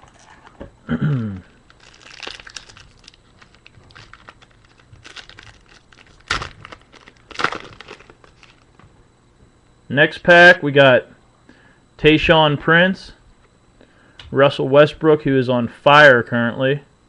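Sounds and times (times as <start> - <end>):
short vocal sound: 0.9 - 1.6
wrapper tearing and crinkling: 1.7 - 8.6.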